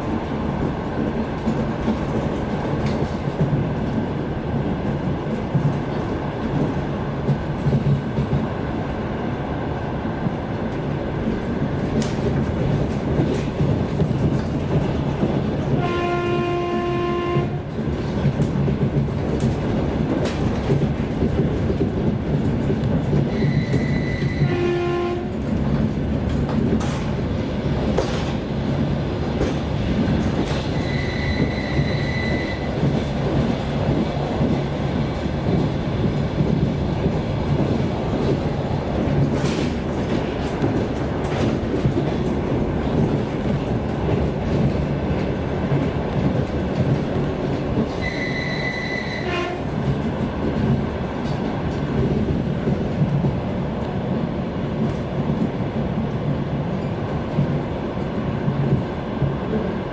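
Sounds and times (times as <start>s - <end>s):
train rumbling from inside: 0.0s - 59.9s
train horn blasts: 15.7s - 17.7s, 23.3s - 25.4s, 48.0s - 49.8s.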